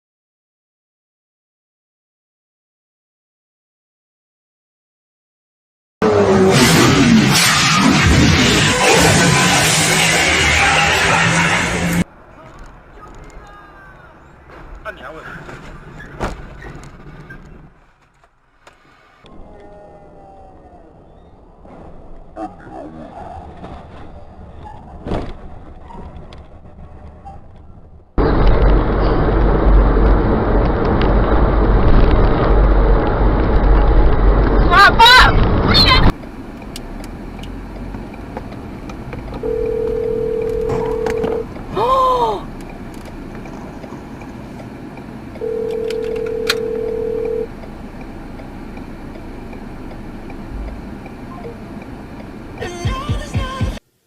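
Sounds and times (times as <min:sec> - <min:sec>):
vehicle engine rumble: 0:08.3 - 0:53.3.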